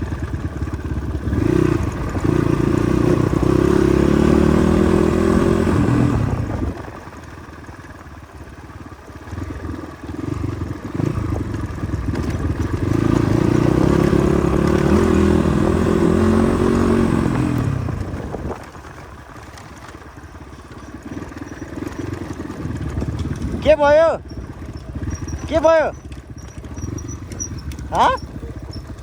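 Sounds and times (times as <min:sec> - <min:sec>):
motorcycle engine under load: 0:00.0 - 0:29.0.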